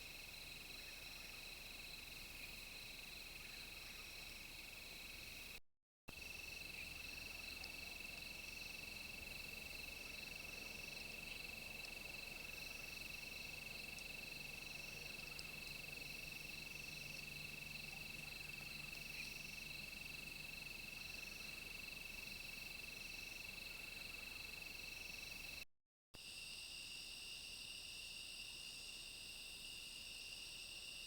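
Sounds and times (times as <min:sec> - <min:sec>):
insect chorus trilling: 0:06.2 - 0:25.6.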